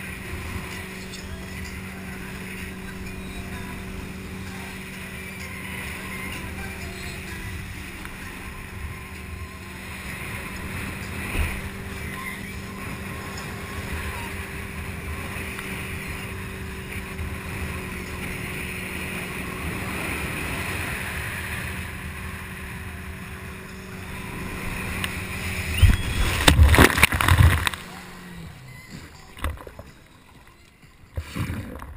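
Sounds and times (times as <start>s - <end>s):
motorboat engine humming: 0.0s - 31.9s
water noise: 0.0s - 31.9s
wind noise: 23.4s - 28.4s.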